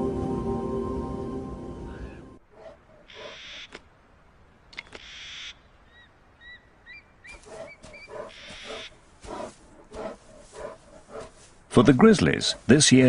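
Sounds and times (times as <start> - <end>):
birds chirping: 1.9 - 3.8, 4.5 - 13.0
harsh repeated bird calls: 2.9 - 3.9, 4.7 - 11.3.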